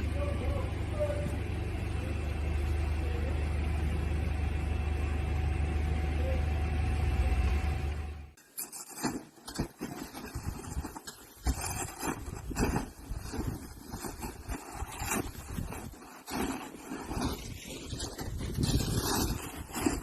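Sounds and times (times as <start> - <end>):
vehicle low rumble: 0.0 - 8.4.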